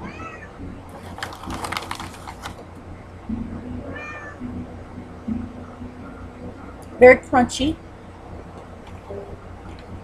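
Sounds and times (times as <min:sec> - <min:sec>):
cat meowing: 0:00.0 - 0:00.5, 0:03.9 - 0:04.4.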